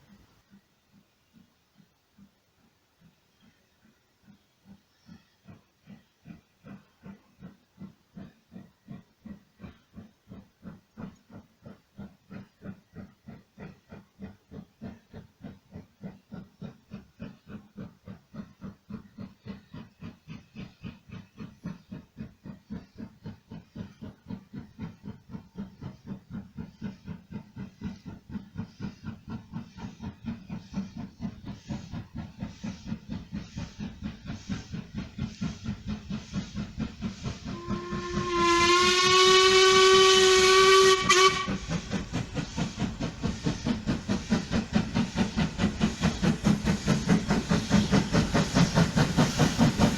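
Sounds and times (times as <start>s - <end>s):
steam locomotive exhaust beats: 0.0s - 49.9s
steam whistle: 37.5s - 41.8s.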